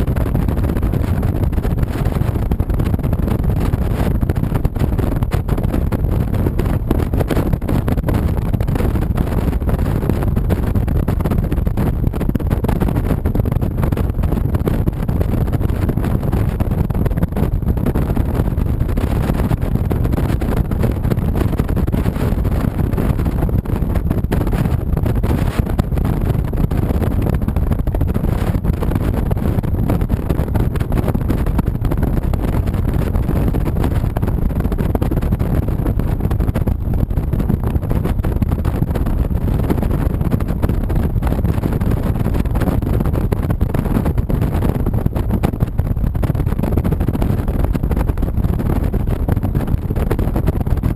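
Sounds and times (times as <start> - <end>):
wind noise on microphone: 0.0 - 50.9.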